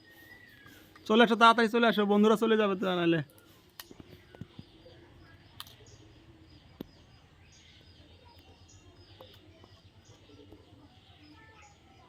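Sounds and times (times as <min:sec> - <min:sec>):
faint bird chirps: 0:00.0 - 0:01.4, 0:02.2 - 0:12.0
sharp clicks: 0:05.6 - 0:05.9.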